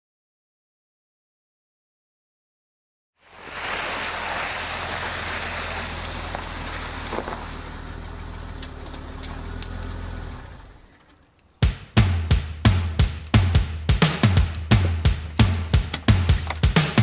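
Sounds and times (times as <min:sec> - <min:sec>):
hiss: 0:03.2 - 0:06.4
tyres rolling on slush: 0:03.2 - 0:11.5
car engine humming: 0:03.3 - 0:17.0.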